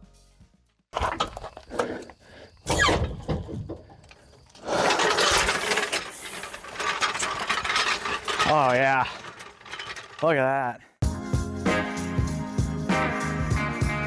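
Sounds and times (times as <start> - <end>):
short falling squeak: 2.6 - 3.7.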